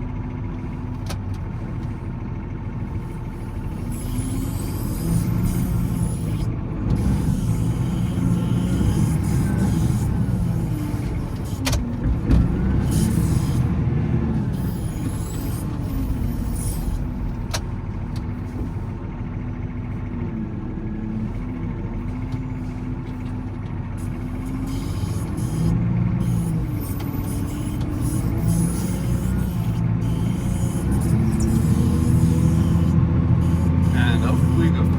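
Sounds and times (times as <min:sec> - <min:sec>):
wheel loader diesel engine: 0:00.0 - 0:34.9.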